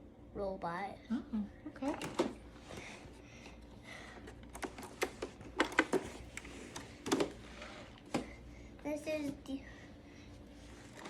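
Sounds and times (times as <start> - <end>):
low room hum: 0.0 - 11.0
plastic parts clicking and tapping: 4.2 - 6.1, 7.0 - 7.4.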